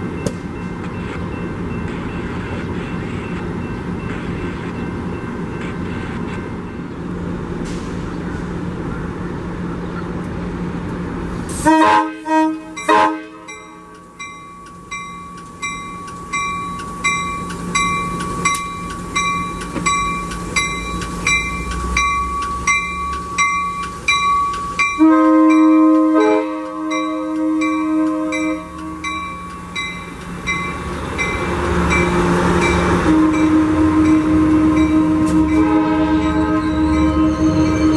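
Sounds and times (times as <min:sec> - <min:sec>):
train rumbling: 0:00.0 - 0:37.9
locomotive horn blasts: 0:11.6 - 0:14.0, 0:24.9 - 0:29.3, 0:31.7 - 0:37.9
bell ringing: 0:12.8 - 0:37.9.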